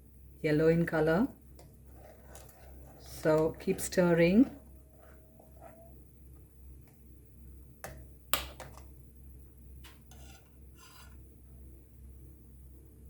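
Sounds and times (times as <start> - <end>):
spoon scraping pan: 1.8 - 6.0, 9.8 - 11.2.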